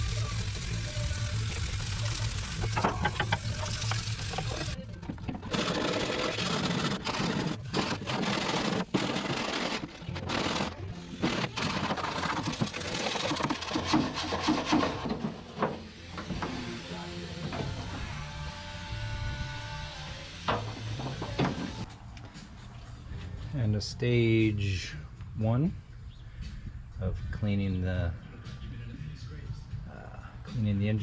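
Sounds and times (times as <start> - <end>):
brush scrubbing metal: 5.4 - 10.7, 11.3 - 16.4.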